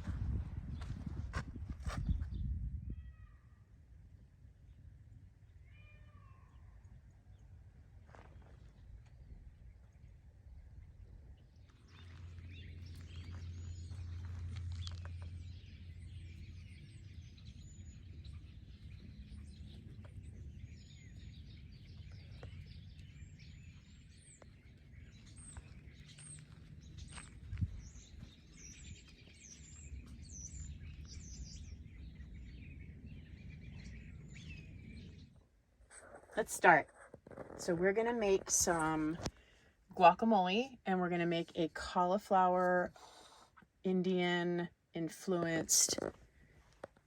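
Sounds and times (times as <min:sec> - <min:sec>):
low steady rumble: 0:00.0 - 0:05.9, 0:08.8 - 0:35.7
small birds chirping: 0:08.1 - 0:41.5.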